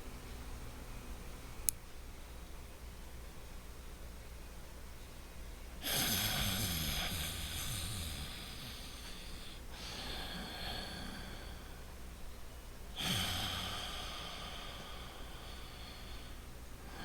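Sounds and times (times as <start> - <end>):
person breathing through the nose: 5.8 - 11.9, 13.0 - 17.0.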